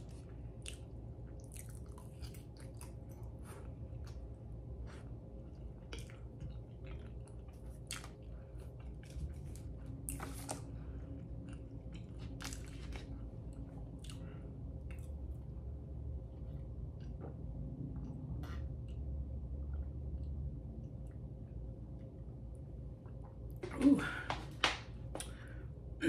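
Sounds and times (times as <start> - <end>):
chewing mouth sounds: 0.1 - 10.7.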